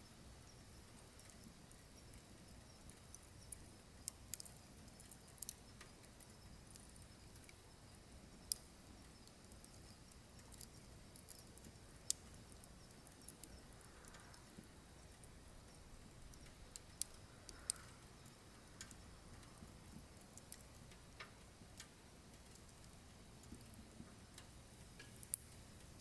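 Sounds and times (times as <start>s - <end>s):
firewood crackling and popping: 0.0s - 26.0s
low hiss of flames: 0.1s - 26.0s.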